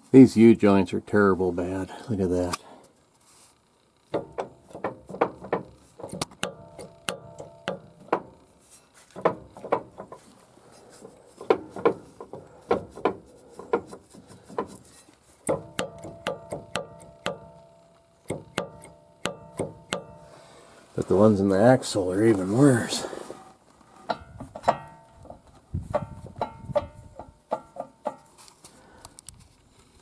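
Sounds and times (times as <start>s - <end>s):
driveshaft joints clacking and knocking: 4.1s - 8.4s, 9.1s - 10.4s, 11.0s - 14.8s, 15.4s - 17.4s.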